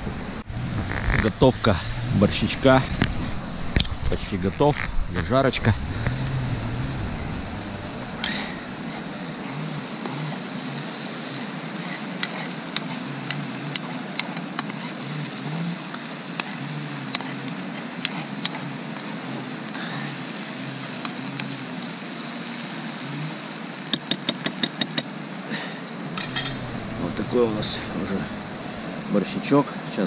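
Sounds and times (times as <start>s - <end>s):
vegetables sizzling in a pan: 5.1s - 30.0s.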